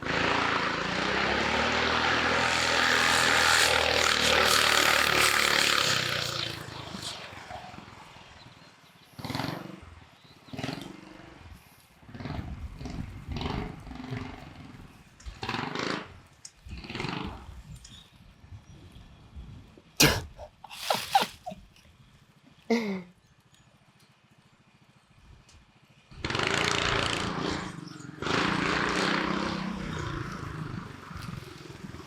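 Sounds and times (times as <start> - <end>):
kart engine running: 0.0 - 8.5, 20.4 - 21.6, 26.1 - 32.0
short bursts: 20.0 - 21.6.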